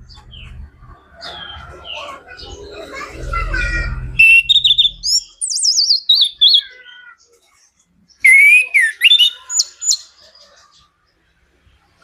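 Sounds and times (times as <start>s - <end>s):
thrush singing whistled notes: 4.2s - 6.7s, 8.2s - 10.0s.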